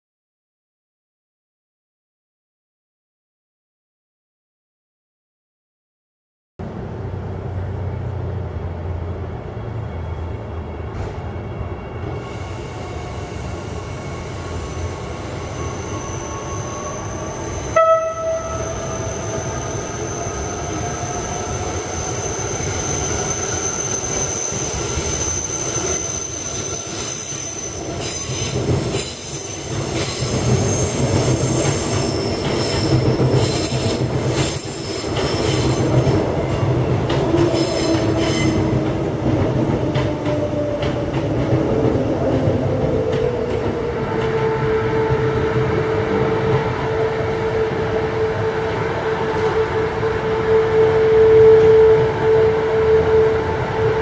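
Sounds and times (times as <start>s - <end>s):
high wheel squeal: 11.9s - 36.2s, 37.3s - 38.8s
train horn toot: 17.7s - 19.6s, 44.3s - 54.0s.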